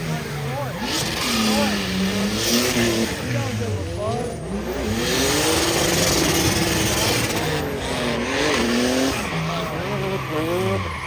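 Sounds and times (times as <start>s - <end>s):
car engine revving: 0.0s - 11.0s
tyres squealing: 5.3s - 11.0s.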